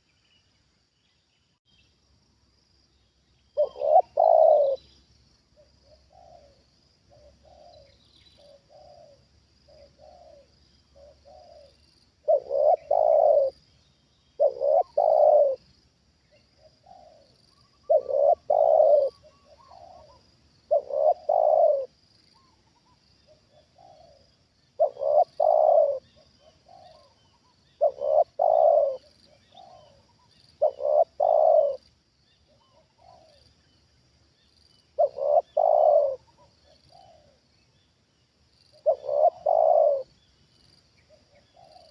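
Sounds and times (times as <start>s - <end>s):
doves cooing: 3.6s - 4.9s, 5.6s - 13.6s, 14.4s - 15.7s, 16.6s - 31.8s, 32.5s - 33.4s, 35.0s - 37.5s, 38.8s - 40.1s, 41.1s - 41.9s.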